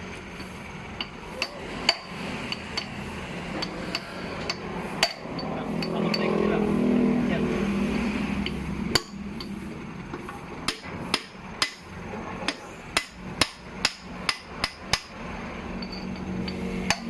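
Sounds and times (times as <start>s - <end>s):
sharp hammer strikes: 3.6s - 6.3s, 10.6s - 11.9s, 12.5s - 15.2s.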